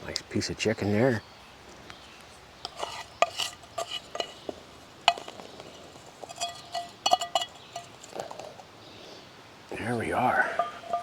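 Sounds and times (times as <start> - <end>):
utensil clinking against pan: 6.2 - 8.1, 10.5 - 11.0.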